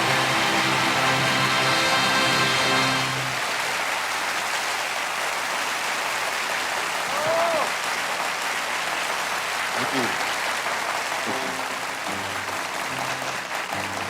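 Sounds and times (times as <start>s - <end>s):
band's last chord: 0.0s - 3.5s, 11.3s - 14.0s
audience applauding: 0.0s - 14.0s
person calling out: 7.1s - 7.7s.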